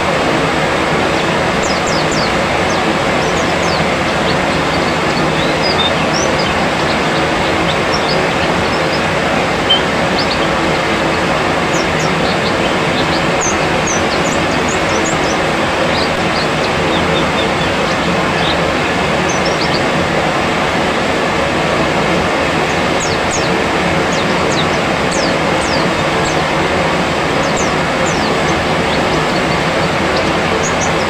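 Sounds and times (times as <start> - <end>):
loud steady rushing noise: 0.0 - 31.0
high bird chirps: 1.0 - 19.9.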